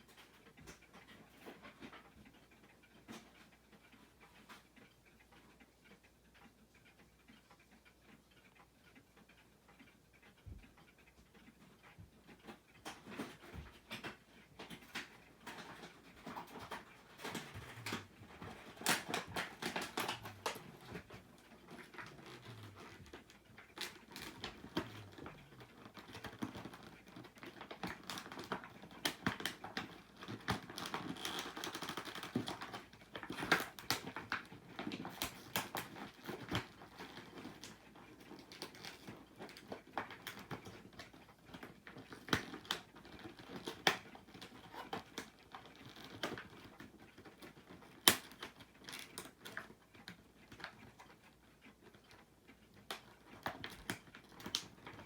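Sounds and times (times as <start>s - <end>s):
plastic packaging clicks: 14.8s - 20.6s, 47.6s - 49.7s.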